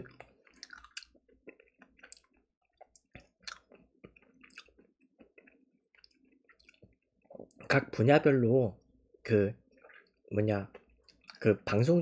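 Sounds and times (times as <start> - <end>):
person chewing: 0.0 - 7.6, 9.6 - 11.5.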